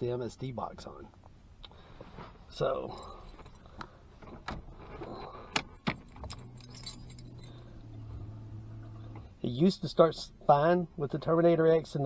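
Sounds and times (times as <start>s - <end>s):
steady low hum: 0.0s - 12.0s
car keys jangling: 2.7s - 9.4s
key clicking in ignition: 5.5s - 8.0s.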